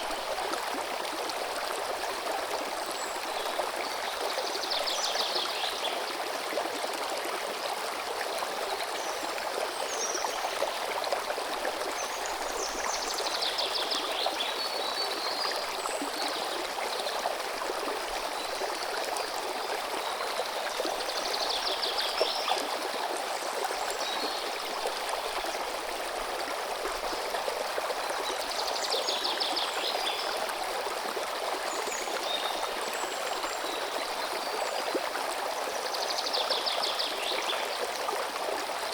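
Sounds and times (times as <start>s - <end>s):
river water running: 0.0s - 38.9s.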